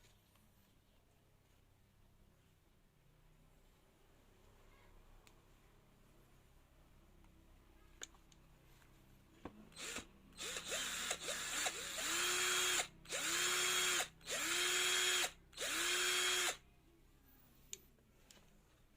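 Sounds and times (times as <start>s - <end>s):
cordless drill motor whining: 9.8s - 16.6s.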